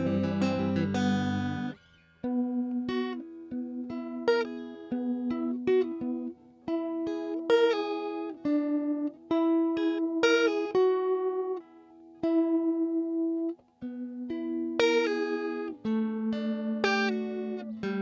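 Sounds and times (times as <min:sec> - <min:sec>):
electric guitar with flanger: 0:00.0 - 0:06.3.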